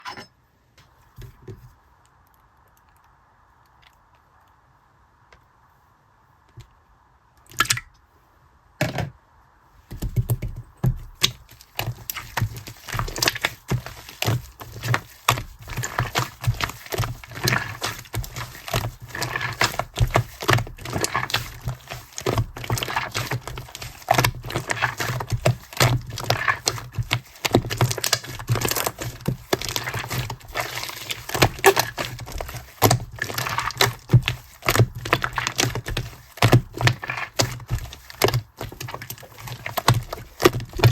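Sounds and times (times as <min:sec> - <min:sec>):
slime crackling and popping squishes: 0:11.2 - 0:40.9.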